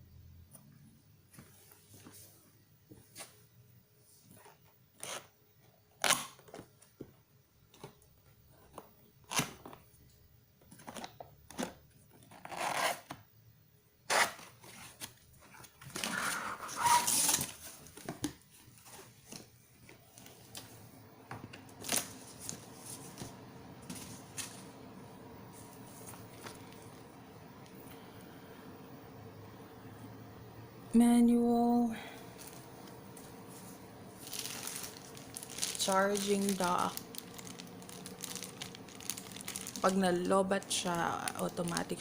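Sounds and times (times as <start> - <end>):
packaging rustling and tearing: 14.1 - 20.7, 21.7 - 24.6, 32.4 - 42.0.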